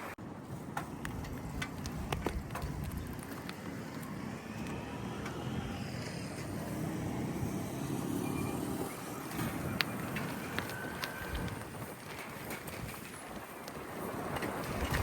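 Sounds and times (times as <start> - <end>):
road vehicle rumble: 0.0 - 15.0.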